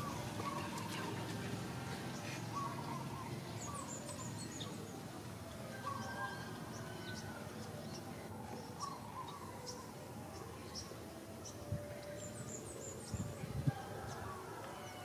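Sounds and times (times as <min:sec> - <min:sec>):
small birds chirping: 0:00.0 - 0:05.2
low steady background noise: 0:00.0 - 0:15.0.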